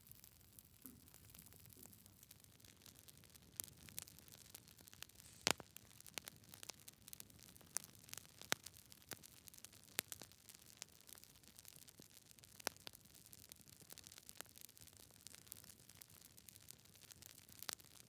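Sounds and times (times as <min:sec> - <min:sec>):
logs crackling and popping: 0:00.8 - 0:18.0.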